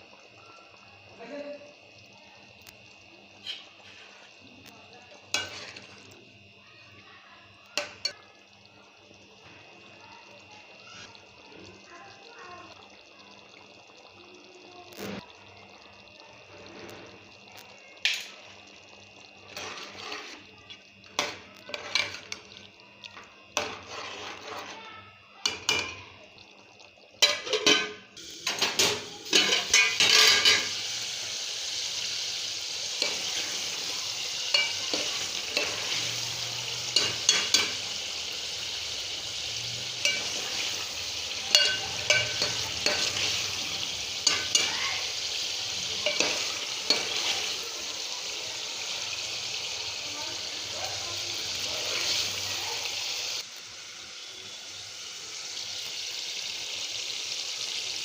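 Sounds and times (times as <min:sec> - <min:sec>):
frying sizzle: 0:00.0 - 0:58.0
spoon scraping a pot: 0:05.3 - 0:06.0, 0:19.5 - 0:20.5, 0:21.2 - 0:22.4, 0:23.6 - 0:24.8, 0:28.7 - 0:30.8, 0:34.5 - 0:37.9, 0:40.0 - 0:44.7, 0:46.0 - 0:47.5.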